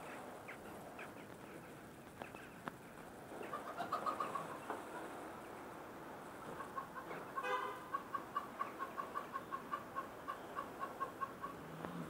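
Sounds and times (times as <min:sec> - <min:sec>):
bird calling: 0:06.5 - 0:11.8.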